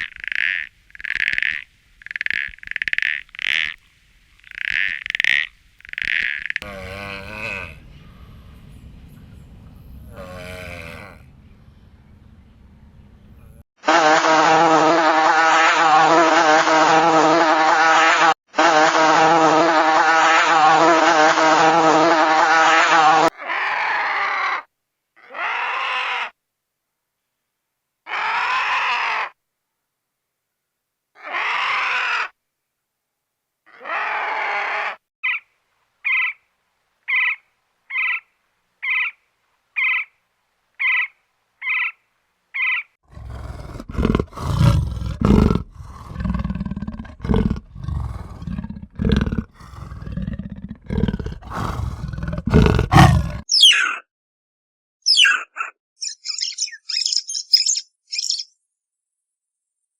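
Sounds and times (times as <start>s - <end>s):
rough animal calls: 0.0s - 3.8s, 4.4s - 8.4s, 10.1s - 11.4s, 13.5s - 26.4s, 31.2s - 32.4s, 42.6s - 54.1s.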